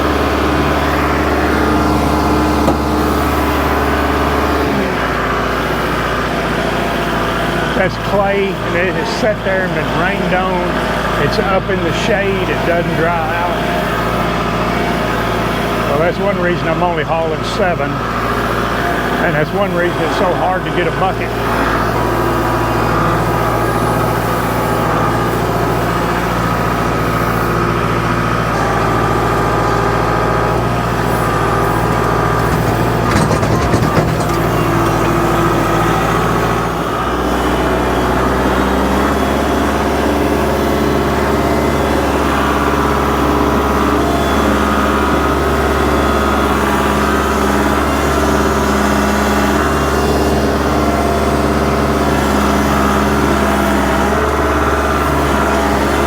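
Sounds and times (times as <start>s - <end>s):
tractor diesel engine running: 0.0s - 56.0s
rattling clatter: 30.7s - 36.6s.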